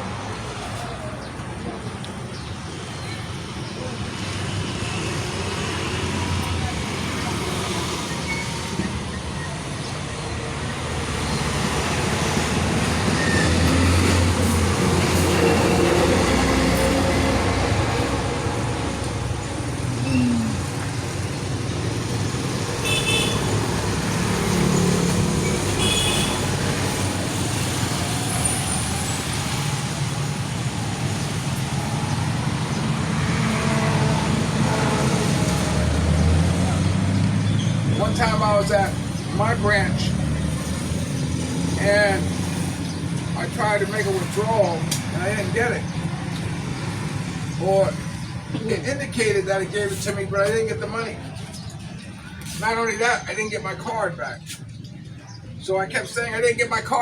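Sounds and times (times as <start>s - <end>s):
vehicles passing: 0.0s - 57.0s.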